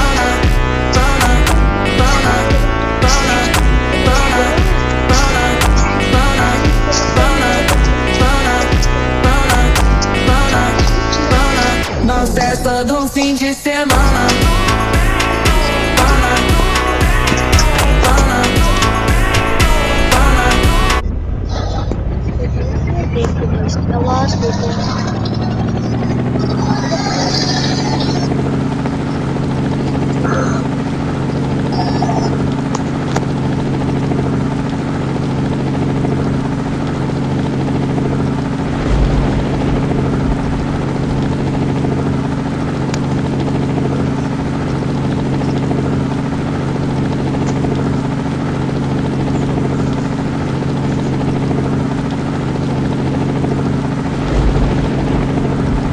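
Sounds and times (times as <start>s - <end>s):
helicopter drone: 0.0s - 55.9s
brief low rumbles: 14.0s - 26.6s, 38.6s - 43.0s, 54.1s - 55.9s.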